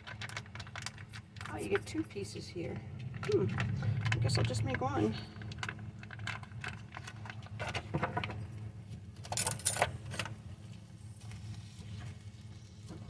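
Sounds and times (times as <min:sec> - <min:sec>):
small clicks and clinks: 0:00.0 - 0:02.4, 0:09.2 - 0:10.4
low steady hum: 0:00.0 - 0:13.0.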